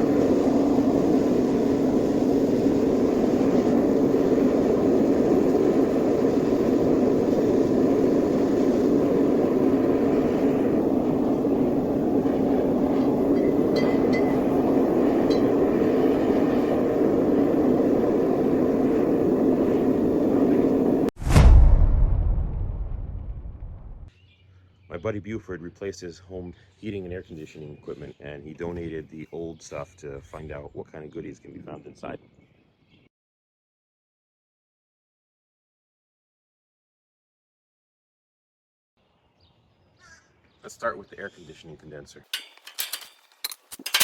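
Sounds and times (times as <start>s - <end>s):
loud boom: 21.2s - 24.1s
low droning rumble: 21.2s - 24.1s.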